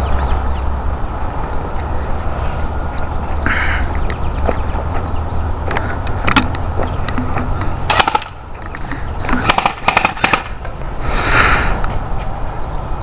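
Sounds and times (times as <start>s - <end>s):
airsoft gun shots: 7.9s - 8.4s, 9.4s - 10.6s.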